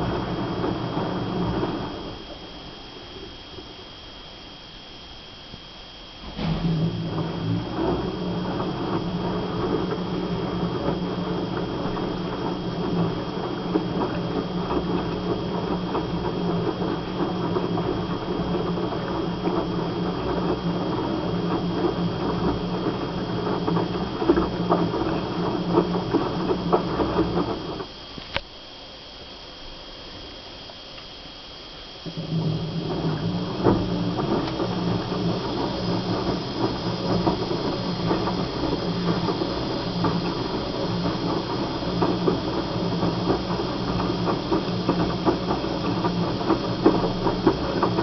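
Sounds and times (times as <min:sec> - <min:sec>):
washing machine motor hum: 0:00.0 - 0:48.0
wet laundry tumbling in drum: 0:06.2 - 0:27.8, 0:32.1 - 0:48.0.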